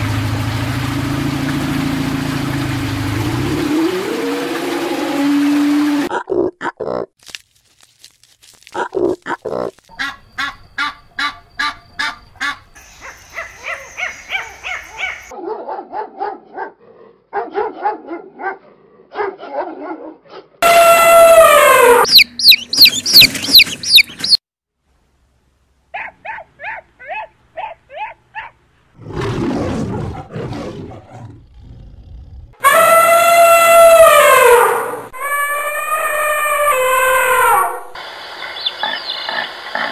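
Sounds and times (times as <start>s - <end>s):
elephant trumpeting: 20.6s - 22.2s, 32.6s - 38.0s
rapid repeated animal calls: 20.6s - 24.4s.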